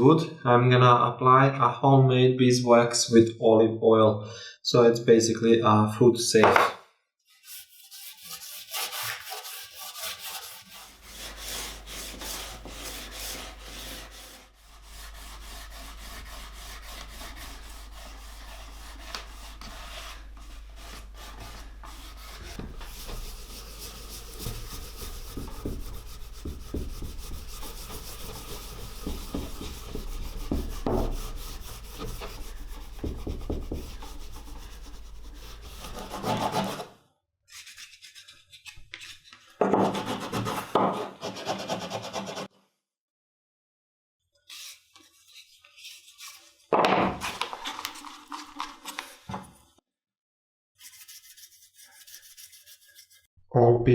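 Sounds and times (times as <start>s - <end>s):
scratchy rubbing on wood: 7.4s - 36.9s, 39.8s - 42.5s, 50.8s - 53.2s.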